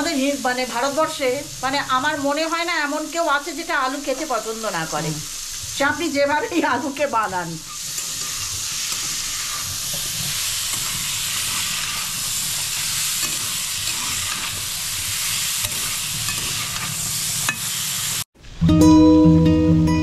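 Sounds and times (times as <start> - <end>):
potatoes sizzling in pan: 0.0 - 18.3
spatula stirring against pan: 7.6 - 17.8.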